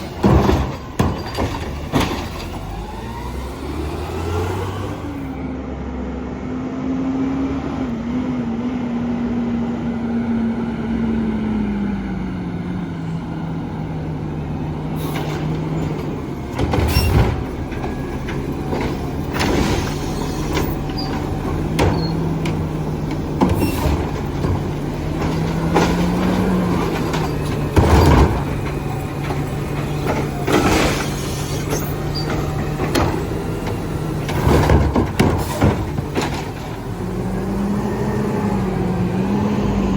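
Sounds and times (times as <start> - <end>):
bin banging against truck: 0.0 - 2.8, 15.0 - 37.1
garbage truck engine and hydraulics: 0.0 - 39.9.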